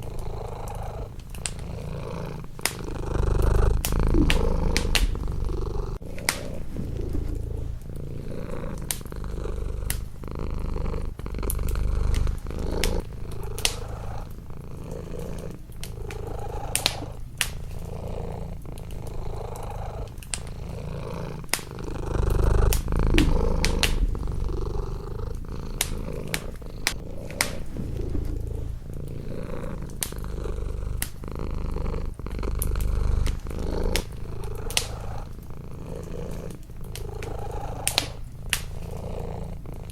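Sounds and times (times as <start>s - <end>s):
cat purring: 0.0s - 39.9s
wood fire crackling: 0.0s - 39.9s.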